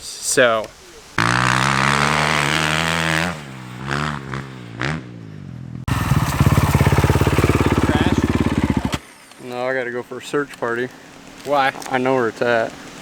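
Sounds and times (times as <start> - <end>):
dirt bike engine starting and idling: 1.2 - 9.1
dirt bike engines running: 1.2 - 13.0.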